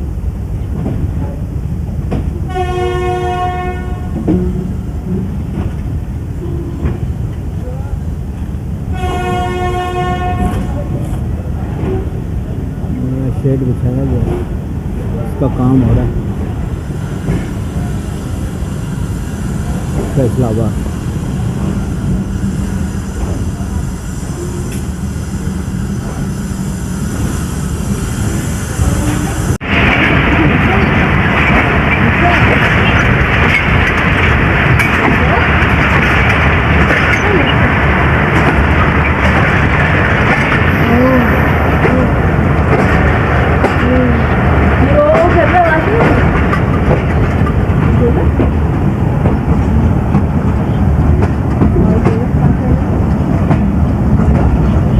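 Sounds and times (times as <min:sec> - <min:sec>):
train rumbling: 0:00.0 - 0:54.9
train horn: 0:02.5 - 0:04.2, 0:08.9 - 0:10.7.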